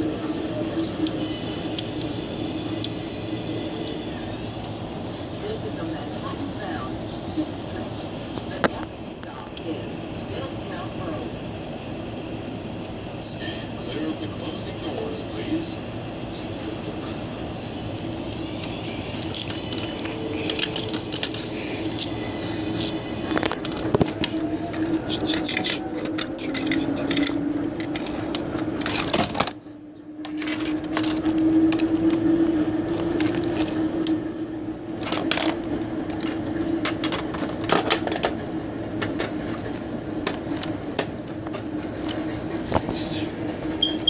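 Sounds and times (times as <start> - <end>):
subway motor hum: 0.0 - 44.0
wheels clicking over rails: 12.2 - 44.0.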